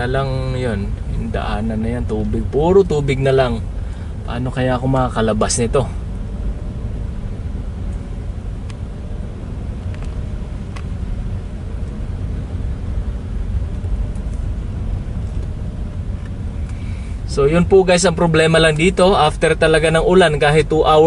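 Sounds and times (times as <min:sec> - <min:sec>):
car engine rumbling: 0:00.0 - 0:21.0.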